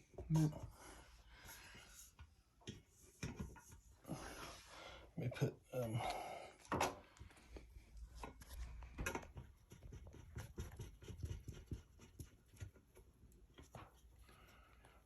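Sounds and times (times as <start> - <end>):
hands clicking and rubbing fan parts: 2.1 - 4.0, 6.7 - 15.0.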